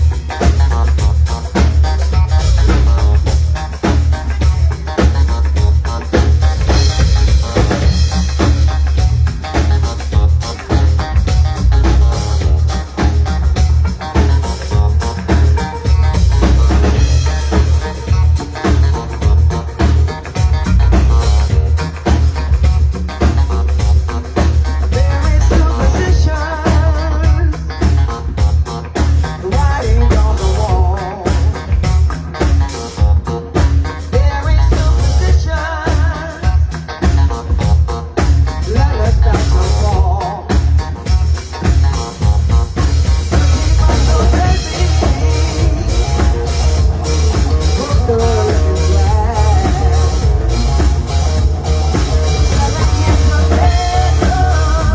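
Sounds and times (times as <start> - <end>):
wavering lead melody: 0.0 - 26.0, 41.1 - 54.9
band playing: 0.0 - 54.9.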